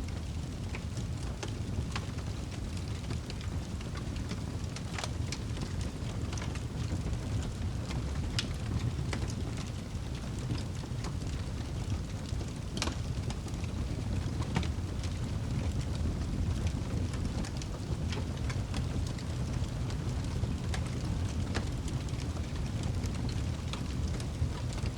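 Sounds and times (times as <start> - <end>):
wood fire flames rumbling: 0.0 - 24.9
logs crackling and popping: 0.1 - 24.9.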